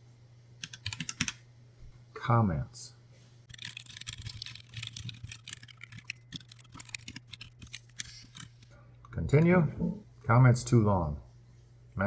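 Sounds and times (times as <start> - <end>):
typing on computer keyboard: 0.6 - 1.4, 3.5 - 8.6.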